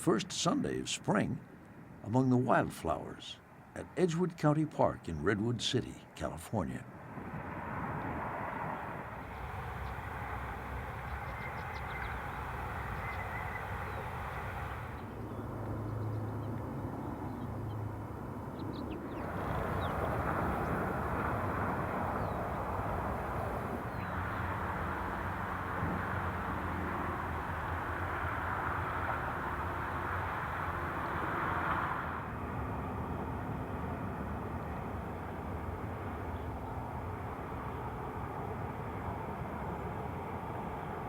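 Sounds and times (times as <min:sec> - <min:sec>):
distant rumbling noise: 0:07.8 - 0:32.3
faint bird chirps: 0:10.9 - 0:16.5.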